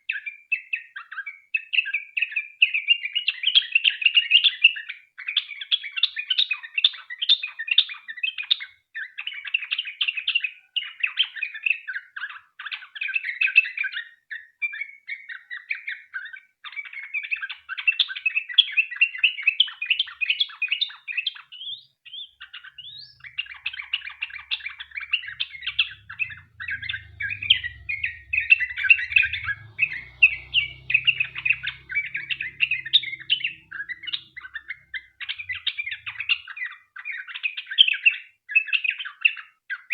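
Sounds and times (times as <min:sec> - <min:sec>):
bird chattering and warbling: 0:20.9 - 0:39.3.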